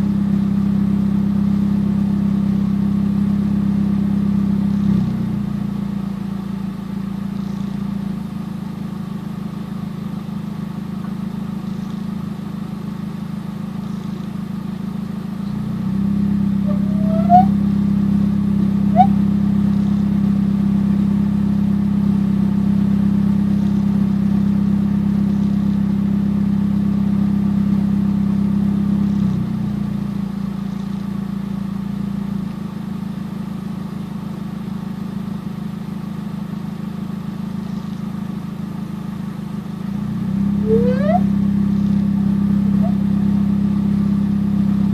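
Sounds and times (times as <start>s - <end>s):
car air conditioning hum: 15.7s - 20.3s
short rising chirp: 16.7s - 17.6s, 18.9s - 19.2s, 40.6s - 41.4s.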